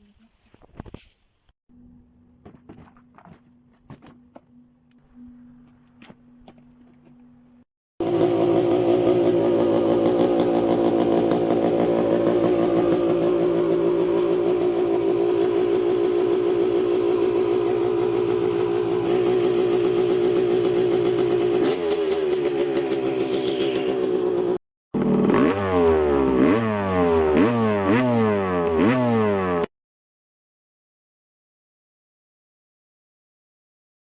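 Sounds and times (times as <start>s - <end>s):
two-stroke engine running: 6.5s - 29.7s.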